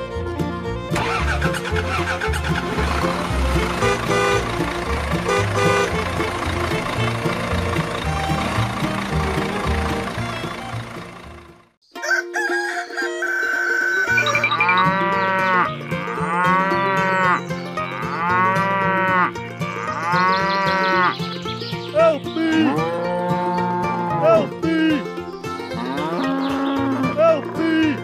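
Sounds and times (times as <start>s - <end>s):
cow mooing: 14.5s - 21.2s, 22.4s - 24.4s, 25.7s - 27.4s.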